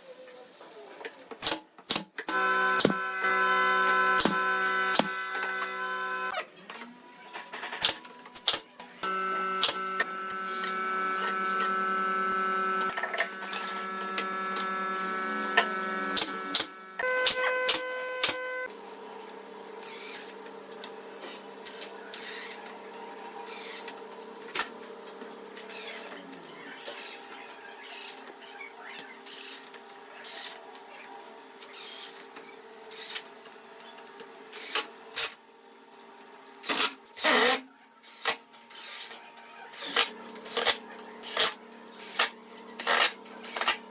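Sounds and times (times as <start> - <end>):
power tool motor whining: 2.3 - 6.3, 9.0 - 18.7, 39.8 - 43.9.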